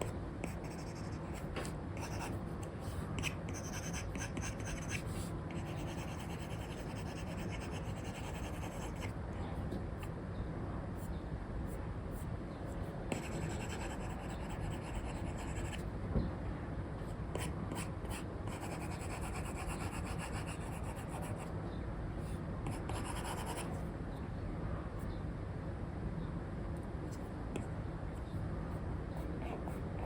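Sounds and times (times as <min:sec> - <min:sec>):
low background noise: 0:00.0 - 0:30.0
stylus scratching on screen: 0:00.4 - 0:01.4, 0:03.2 - 0:09.1.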